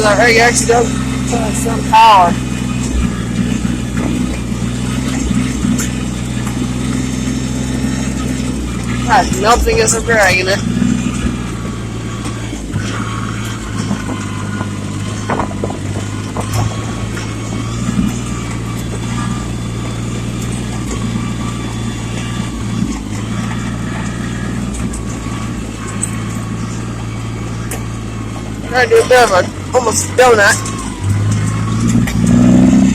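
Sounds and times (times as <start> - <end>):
tractor diesel engine running: 0.0 - 32.9
knocks and clanks: 11.2 - 21.2.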